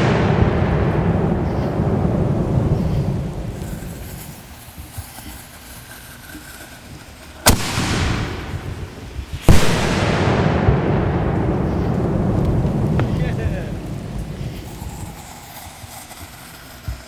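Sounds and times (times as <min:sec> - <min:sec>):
mortar launch bang: 0:00.0 - 0:04.3, 0:07.5 - 0:15.2
shell bursting with rumble: 0:00.0 - 0:17.0.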